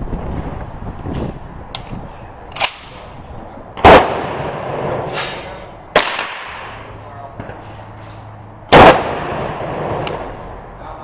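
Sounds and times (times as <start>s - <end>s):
loud rifle shot: 3.8s - 6.8s, 8.7s - 10.3s
sharp quieter gunshots: 3.8s - 7.6s, 8.7s - 10.5s.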